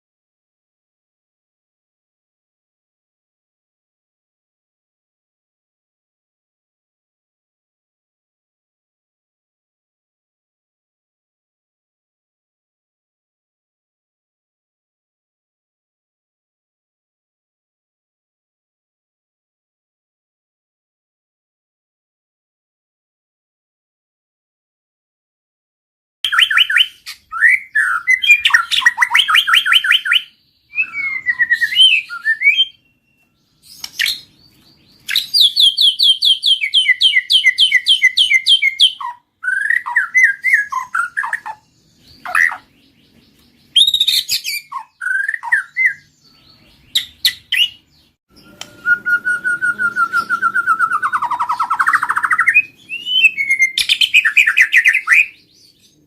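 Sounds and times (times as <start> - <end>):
songbird singing trills and whistles: 26.3 - 56.0.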